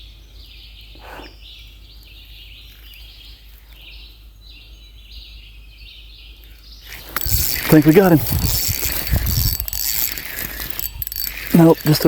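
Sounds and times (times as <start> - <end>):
insects buzzing in chorus: 6.8 - 12.0.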